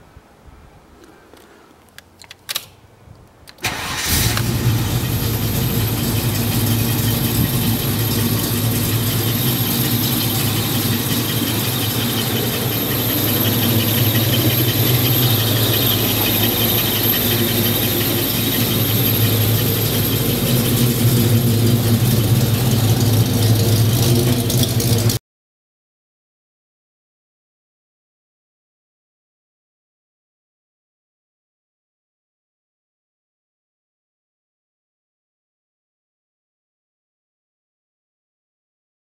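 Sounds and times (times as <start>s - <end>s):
car engine starting and idling: 3.5s - 25.2s
thin high whine: 4.6s - 25.1s.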